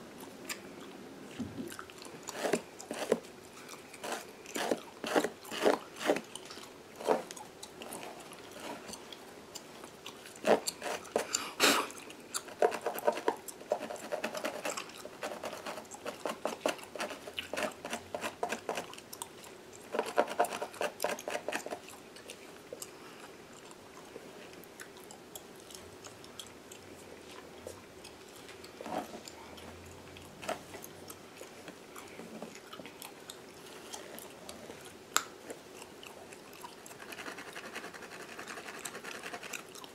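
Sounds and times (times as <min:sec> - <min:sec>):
gum chewing and smacking: 0:00.1 - 0:39.9
fingers scratching through hair: 0:04.0 - 0:06.3, 0:10.4 - 0:11.3, 0:12.4 - 0:18.9, 0:36.9 - 0:39.7.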